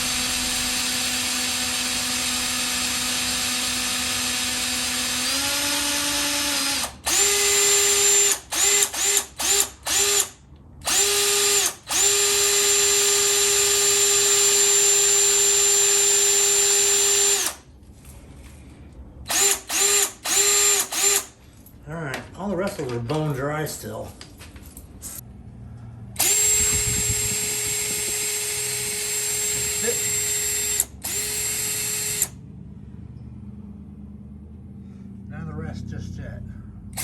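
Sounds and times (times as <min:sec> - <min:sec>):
electric drill spinning: 0:00.0 - 0:17.6, 0:19.3 - 0:21.4, 0:26.2 - 0:32.4.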